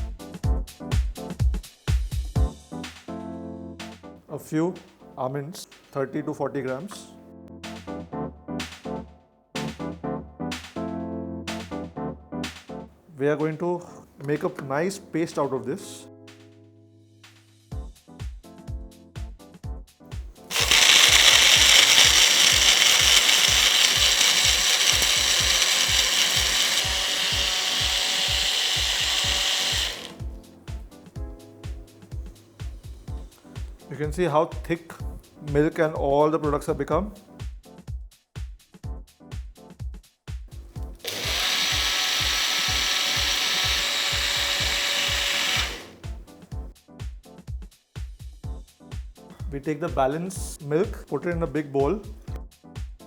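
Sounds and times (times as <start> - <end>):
background music with beat: 0.0 - 5.1, 6.9 - 13.0, 16.1 - 20.5, 29.4 - 41.6, 44.2 - 53.0
electric blender running: 20.4 - 30.4, 40.8 - 46.2
mixer grinder motor whine: 20.5 - 30.4, 40.8 - 46.2.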